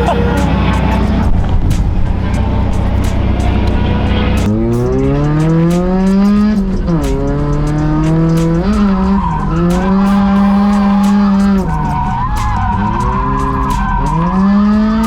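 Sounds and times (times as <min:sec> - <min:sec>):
tyres screeching: 0:00.0 - 0:04.5, 0:09.0 - 0:15.0
car engine revving hard: 0:00.0 - 0:12.0.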